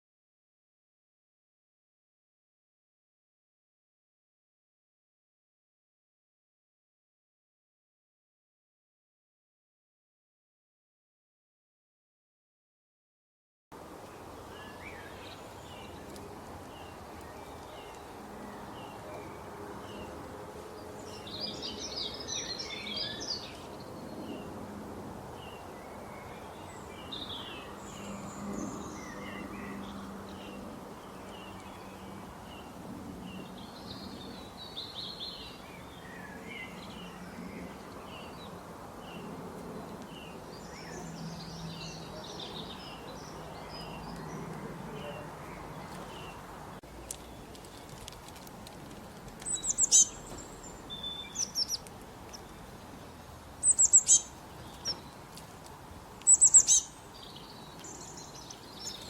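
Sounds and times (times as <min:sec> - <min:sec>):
small birds chirping: 0:14.0 - 0:24.5, 0:25.3 - 0:59.0.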